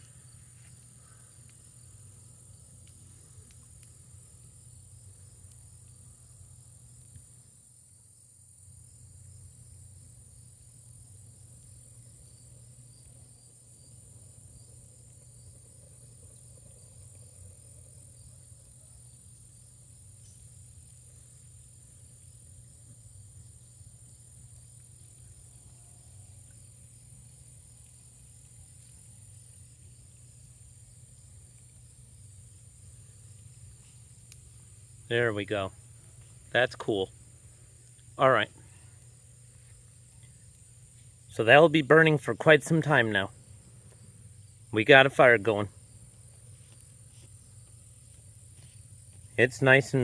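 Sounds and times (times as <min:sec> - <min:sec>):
crickets chirping: 0:00.0 - 0:50.0
low steady rumble: 0:20.5 - 0:50.0.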